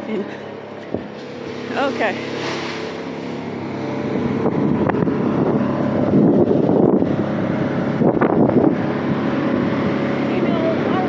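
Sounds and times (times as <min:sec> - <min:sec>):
heavy machinery engine running: 0:00.0 - 0:11.0.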